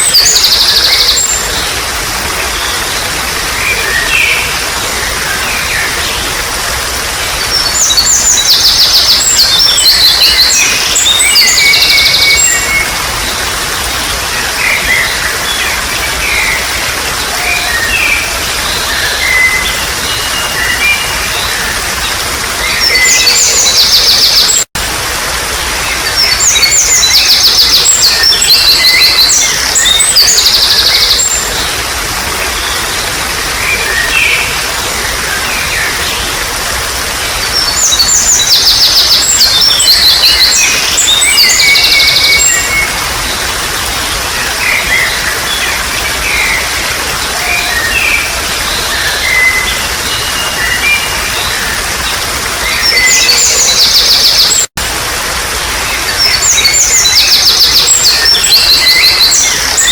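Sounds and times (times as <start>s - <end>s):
trickling water: 0.0s - 59.9s
songbirds trilling and chirping: 55.8s - 59.9s.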